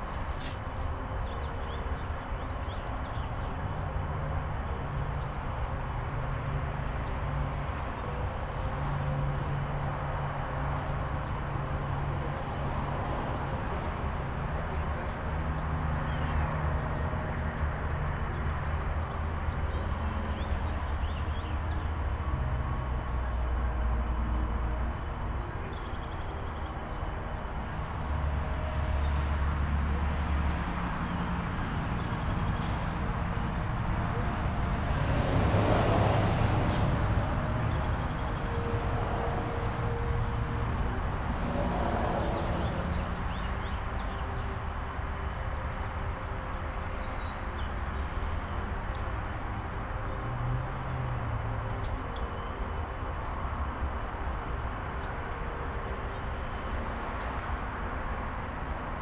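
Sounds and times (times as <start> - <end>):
heavy vehicle engines humming: 0.0 - 59.0
steady vehicle traffic: 0.0 - 59.0
vehicle passing close: 30.7 - 43.4.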